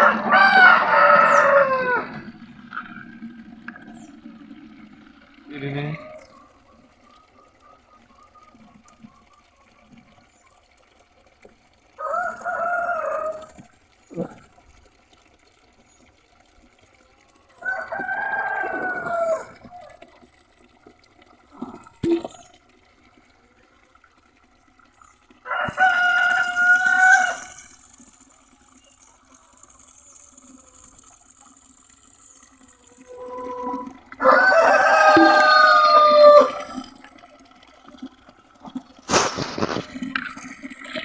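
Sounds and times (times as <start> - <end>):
roosters crowing: 0.0 - 3.5, 12.0 - 13.7, 17.6 - 20.0, 25.4 - 27.8, 32.9 - 37.0.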